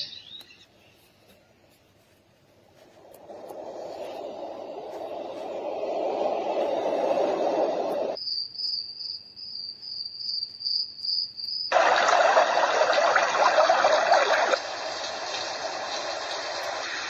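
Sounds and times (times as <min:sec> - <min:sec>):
hissy white noise: 0:01.7 - 0:08.2, 0:11.7 - 0:17.0
recorded cricket chirp: 0:02.8 - 0:12.1
deep rushing noise: 0:02.9 - 0:08.2.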